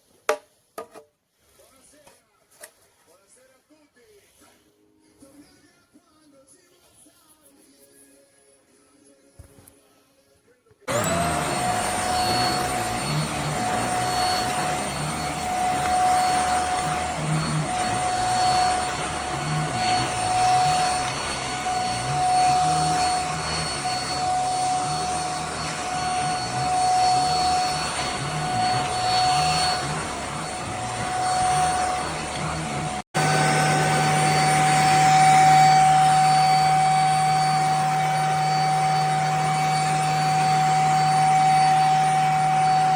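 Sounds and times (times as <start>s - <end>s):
handheld vacuum cleaner whine: 10.9s - 42.9s.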